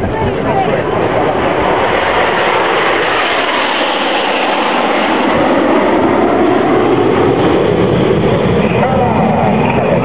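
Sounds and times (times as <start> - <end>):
jet engines rushing: 0.0 - 10.0.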